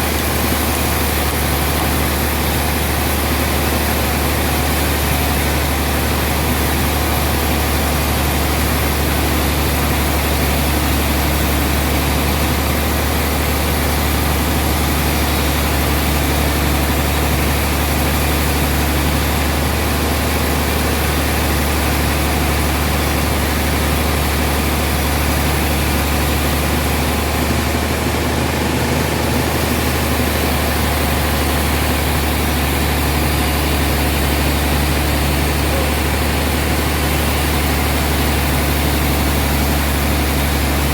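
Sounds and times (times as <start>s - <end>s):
sawmill machinery droning: 0.0s - 40.9s.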